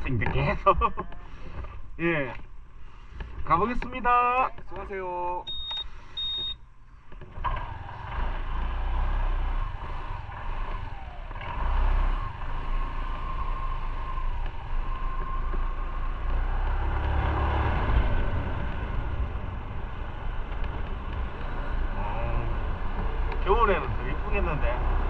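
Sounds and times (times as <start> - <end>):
motorcycle engine rumbling: 7.2 - 25.0.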